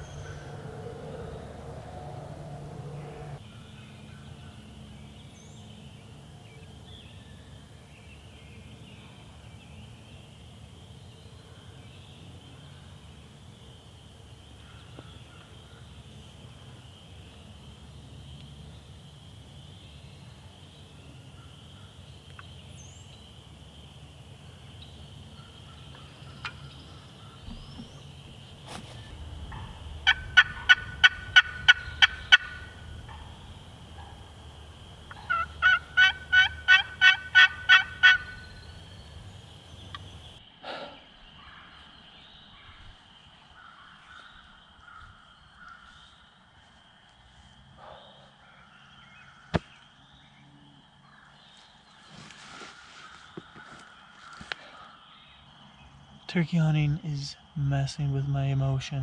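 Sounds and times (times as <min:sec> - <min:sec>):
wild turkey yelps: 0:28.9 - 0:34.3, 0:35.1 - 0:38.7.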